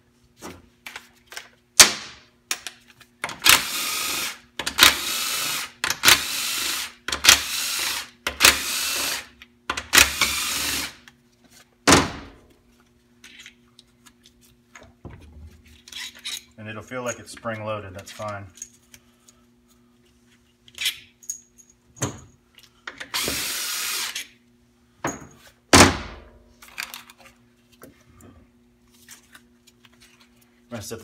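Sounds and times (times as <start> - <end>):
power tool spinning bolts: 3.3 - 11.0.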